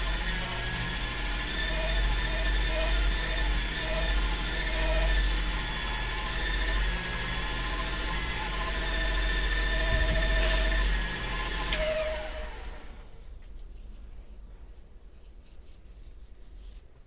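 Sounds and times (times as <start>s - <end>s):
small machine motor humming: 0.0s - 13.1s.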